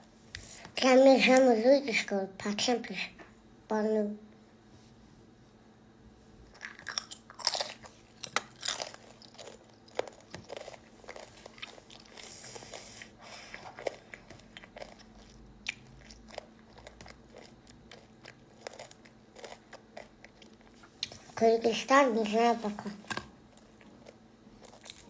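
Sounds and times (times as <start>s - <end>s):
person chewing and crunching food: 6.5s - 21.4s, 23.6s - 25.0s.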